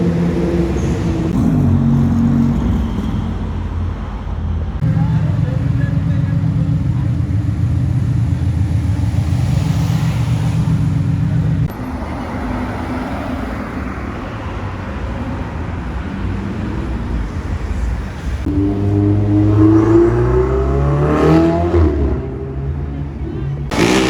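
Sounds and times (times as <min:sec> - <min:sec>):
car engine humming: 0:00.0 - 0:21.0, 0:22.2 - 0:24.0
road and tyre noise: 0:00.0 - 0:24.0.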